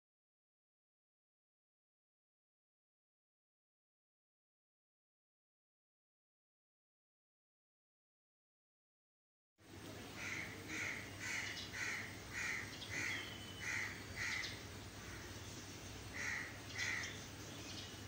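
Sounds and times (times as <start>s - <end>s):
faint steady hum: 9.6s - 18.0s
bird calling: 10.2s - 18.0s.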